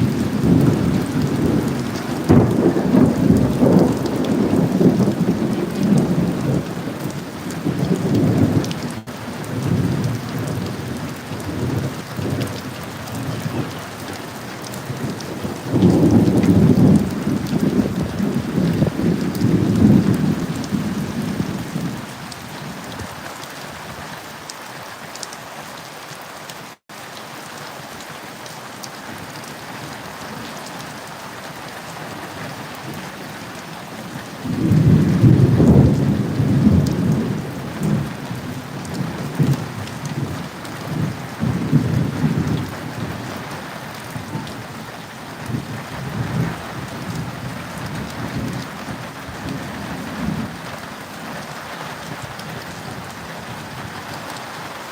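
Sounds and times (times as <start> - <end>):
thunder rumbling: 0.0 - 23.2, 32.8 - 43.4, 44.0 - 50.6
steady rain: 0.0 - 54.9.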